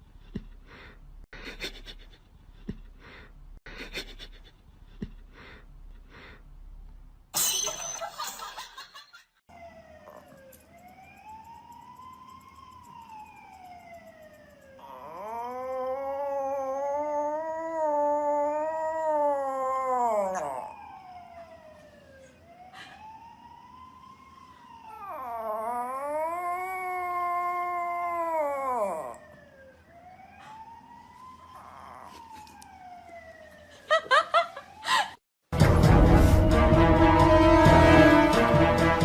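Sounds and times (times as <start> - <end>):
animal howling: 14.8 - 21.2, 24.9 - 29.4, 31.4 - 32.6.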